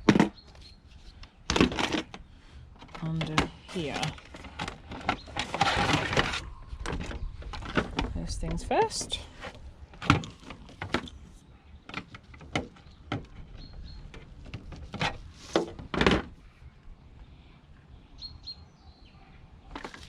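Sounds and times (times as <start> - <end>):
plastic parts and tools clicking: 0.0 - 2.2, 2.8 - 8.7, 9.4 - 11.3, 11.9 - 16.3.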